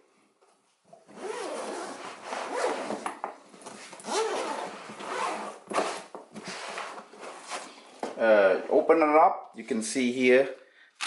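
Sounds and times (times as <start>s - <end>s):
zipper being pulled open: 1.1s - 7.7s.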